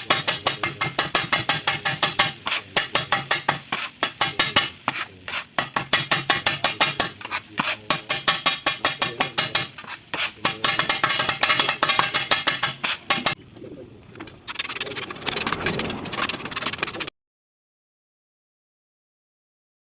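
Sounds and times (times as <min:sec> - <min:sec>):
metal spatulas clanging on griddle: 0:00.0 - 0:13.4
steady griddle noise: 0:00.0 - 0:17.1.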